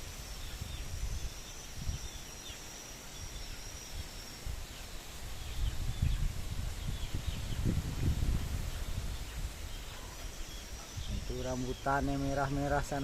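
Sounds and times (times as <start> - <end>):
birds chirping: 0.0 - 13.0
insect buzzing: 0.0 - 13.0
gusty wind buffeting microphone: 3.3 - 13.0.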